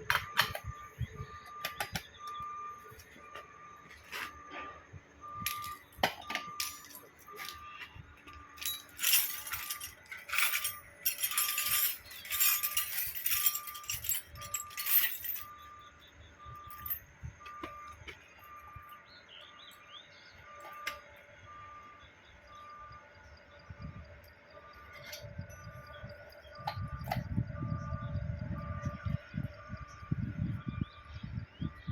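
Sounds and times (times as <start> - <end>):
metal parts rattling and clinking: 0.0 - 4.4, 5.2 - 19.0, 24.8 - 27.3.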